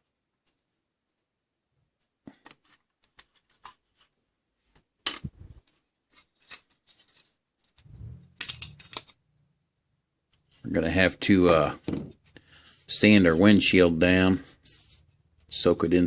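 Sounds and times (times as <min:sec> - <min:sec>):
toy car parts clicking: 0:07.7 - 0:09.2.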